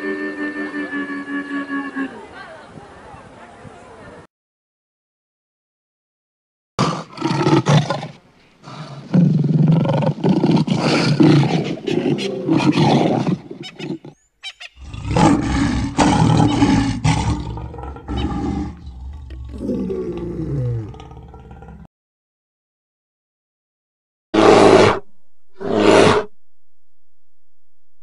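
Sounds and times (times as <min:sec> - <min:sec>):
lion roaring: 0:14.8 - 0:21.9, 0:24.4 - 0:25.0, 0:25.6 - 0:26.3.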